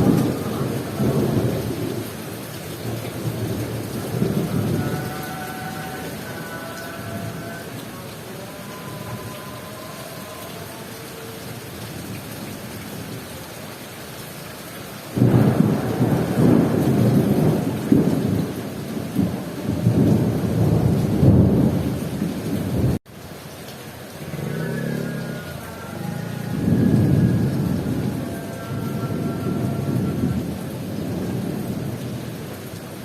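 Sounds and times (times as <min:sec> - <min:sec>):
rolling thunder rumble: 0:00.0 - 0:07.7, 0:15.2 - 0:23.0, 0:25.5 - 0:32.6
heavy rain falling: 0:00.0 - 0:33.0.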